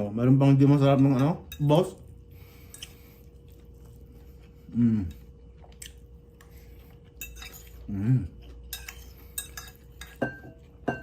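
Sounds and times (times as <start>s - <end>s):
person chewing food: 2.0s - 10.8s
person humming: 4.7s - 5.2s.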